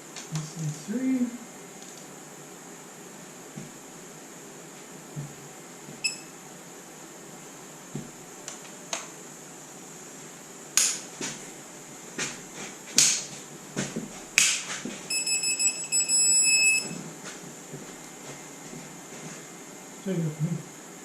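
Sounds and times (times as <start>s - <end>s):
fast electronic beeping: 15.1s - 17.0s.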